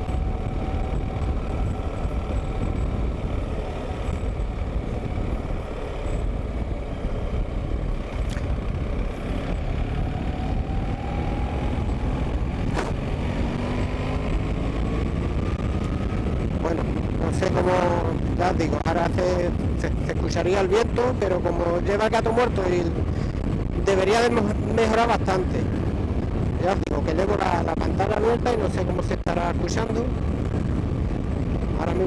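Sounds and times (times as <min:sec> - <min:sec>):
motorcycle engine accelerating: 0:00.0 - 0:18.4
road noise: 0:00.0 - 0:32.0
wind noise: 0:00.0 - 0:32.0.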